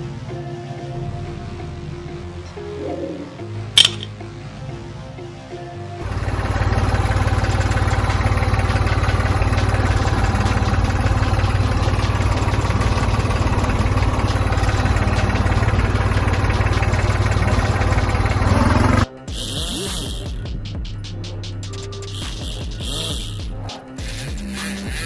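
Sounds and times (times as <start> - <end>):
tractor engine running: 6.0 - 19.1.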